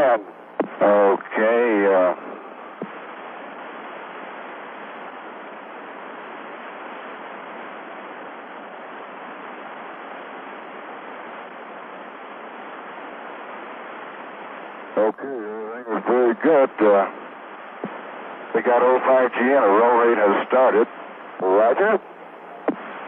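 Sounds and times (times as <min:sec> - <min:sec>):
radio channel hiss: 0:00.0 - 0:23.0.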